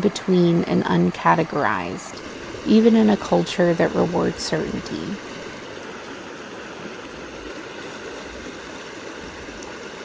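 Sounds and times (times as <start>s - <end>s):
steady rushing noise: 2.1s - 6.4s.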